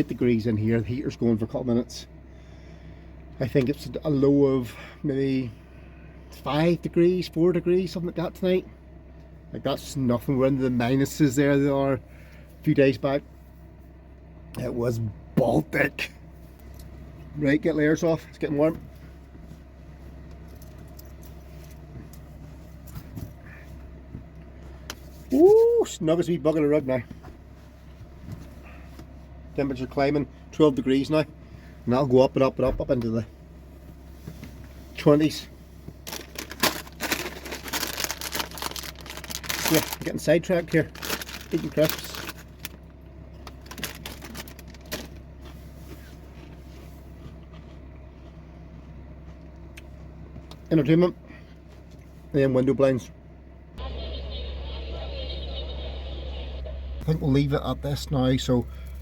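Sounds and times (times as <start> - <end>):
low hum inside vehicle: 0.0 - 59.0
packet crinkling: 36.0 - 40.2, 40.9 - 42.8, 43.5 - 45.2
crisps crunching: 36.0 - 45.7
heater humming: 53.0 - 59.0.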